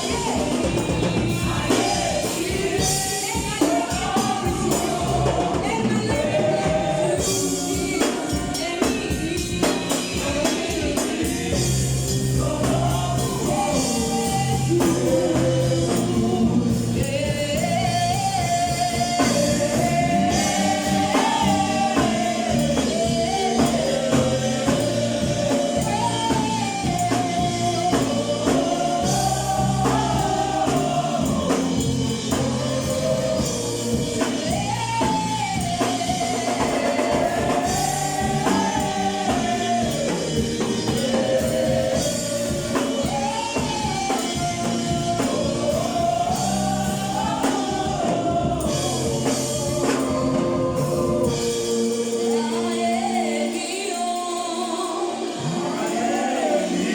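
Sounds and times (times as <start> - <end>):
band bass and drums: 0.0 - 53.0
gospel choir singing: 0.0 - 56.9.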